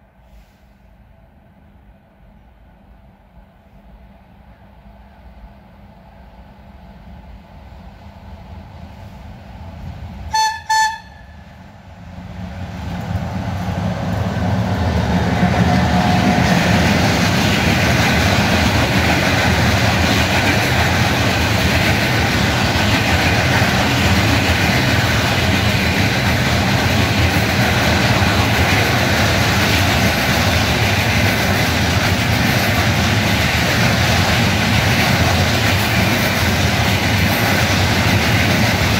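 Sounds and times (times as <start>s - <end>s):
train wheels on rails: 0.0s - 38.9s
train horn blasts: 10.3s - 11.7s.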